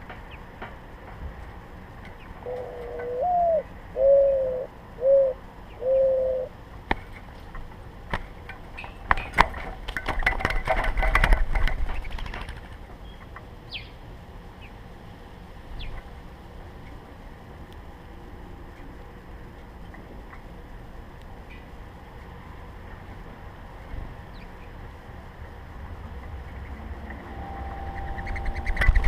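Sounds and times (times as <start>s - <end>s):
small birds chipping: 0.0s - 10.4s, 11.6s - 14.9s, 15.5s - 18.0s, 18.7s - 29.0s
dove cooing: 2.4s - 6.6s
sharp clicks and rustling: 6.9s - 13.5s.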